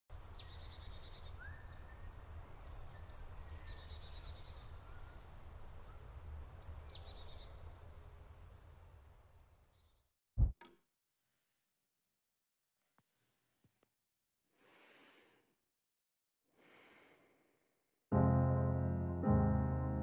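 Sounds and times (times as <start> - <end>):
birds chirping and trilling: 0.1 - 10.0.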